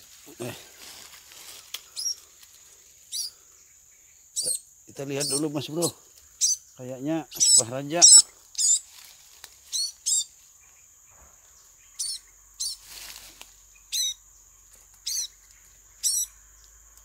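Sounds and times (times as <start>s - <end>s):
faint insect drone: 0.0s - 17.0s
rustle of leaves and twigs: 0.0s - 17.0s
small bird sharp high chirps: 3.1s - 3.4s, 4.1s - 5.6s, 6.4s - 8.9s, 9.6s - 10.3s, 11.8s - 12.9s, 13.8s - 14.2s, 15.0s - 16.4s.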